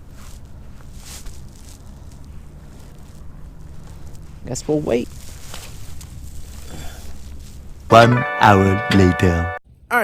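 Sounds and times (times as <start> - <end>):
faint rustles: 0.0 - 7.9.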